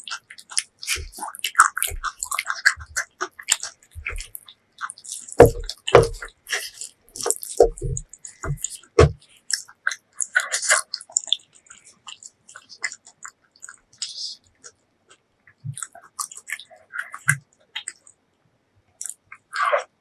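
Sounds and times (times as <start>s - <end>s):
mouth clicks: 0.0s - 14.8s
wet chewing smacks: 0.0s - 18.2s, 19.0s - 20.0s.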